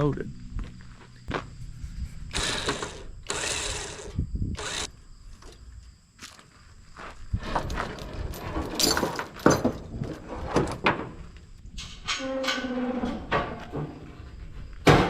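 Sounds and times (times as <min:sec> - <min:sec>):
metal clanks and rattles: 0:07.4 - 0:15.0.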